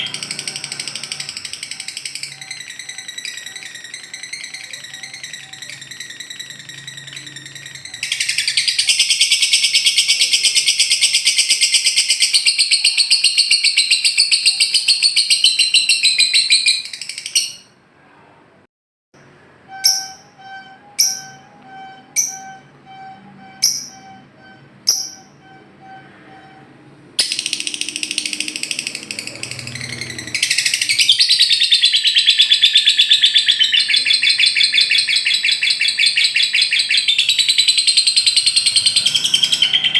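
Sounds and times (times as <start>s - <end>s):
pulsing tone: 0.0s - 9.2s, 19.7s - 31.0s
bird chattering trill: 0.0s - 17.7s, 19.7s - 26.0s, 27.2s - 39.9s
sharp bird chirps: 0.0s - 17.7s, 19.7s - 26.5s, 27.2s - 39.9s.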